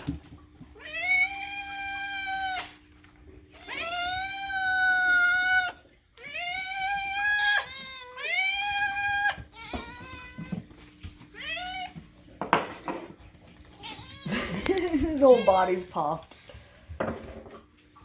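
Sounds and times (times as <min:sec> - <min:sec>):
cat yowling: 0:00.8 - 0:02.8, 0:03.6 - 0:10.5, 0:11.4 - 0:12.0.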